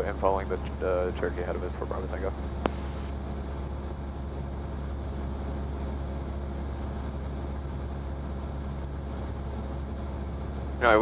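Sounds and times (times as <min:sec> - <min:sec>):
aircraft engine droning: 0:00.0 - 0:11.0.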